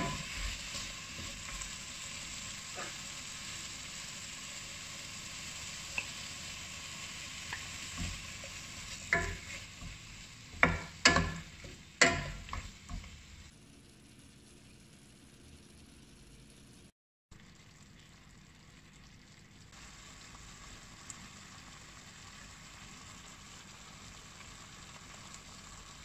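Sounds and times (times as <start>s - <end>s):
spatula knocking on pan: 0.0s - 0.4s, 9.1s - 13.2s
vegetables sizzling in a wok: 0.0s - 16.9s, 17.7s - 26.0s.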